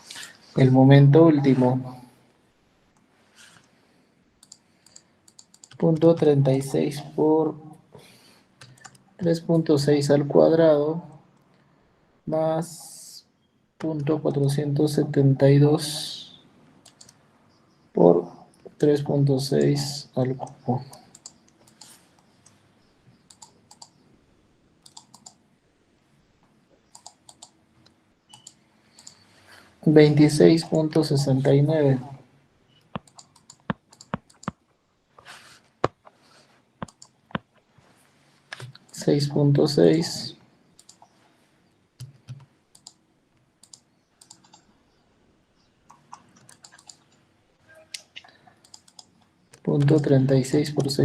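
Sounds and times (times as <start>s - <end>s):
computer keyboard typing: 4.4s - 6.3s, 8.6s - 9.6s, 16.8s - 17.2s, 19.5s - 22.6s, 23.2s - 24.0s, 24.8s - 25.4s, 26.8s - 29.3s, 32.9s - 34.6s, 36.8s - 37.5s, 42.0s - 43.0s, 43.6s - 44.7s, 45.9s - 47.2s, 48.0s - 51.0s.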